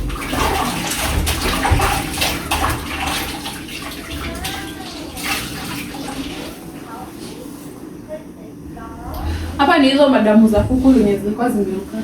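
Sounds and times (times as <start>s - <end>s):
water splashing and sloshing: 0.0s - 7.8s, 8.6s - 12.0s
irregular knocks: 10.4s - 11.0s.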